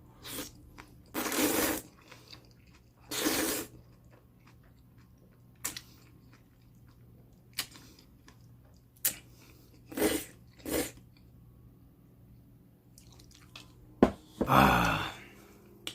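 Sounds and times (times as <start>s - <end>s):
person eating noodles: 0.2s - 4.8s, 9.0s - 11.0s.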